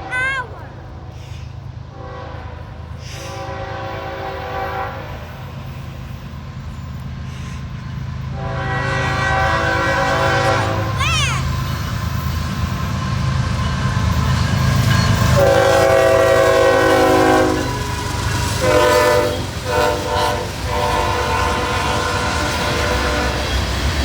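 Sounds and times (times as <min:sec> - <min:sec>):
train engine and wheels rumbling: 0:00.0 - 0:24.0
locomotive air horn blasts: 0:01.9 - 0:05.3, 0:08.3 - 0:11.0, 0:15.4 - 0:18.0, 0:18.6 - 0:23.5.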